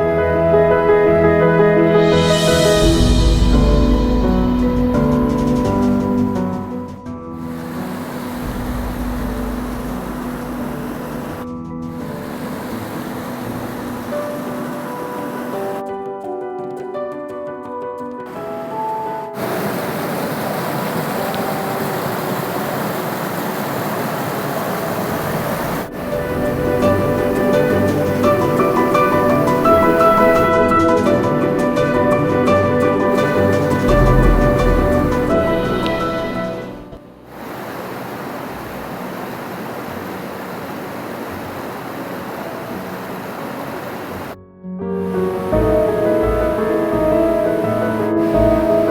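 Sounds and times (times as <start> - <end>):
background music: 0.0 - 19.8, 25.9 - 37.4, 44.4 - 48.9
waterfall rushing: 2.0 - 15.8, 18.3 - 44.4, 45.0 - 48.9.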